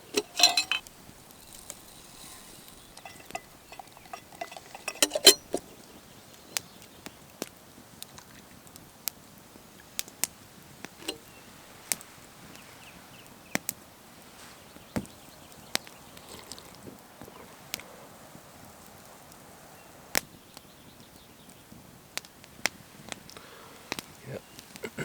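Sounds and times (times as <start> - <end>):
small hard objects clinking: 0.0 - 5.8, 11.0 - 11.3.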